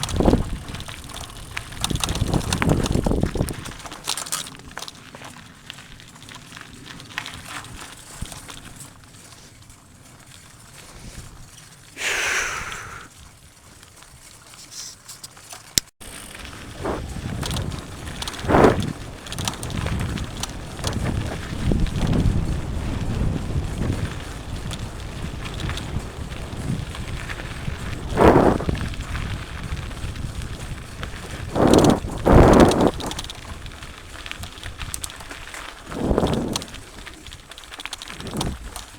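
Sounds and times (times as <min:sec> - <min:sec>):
mountain bike rattling on dirt trail: 0:00.0 - 0:38.9
falling hiss: 0:12.0 - 0:13.1.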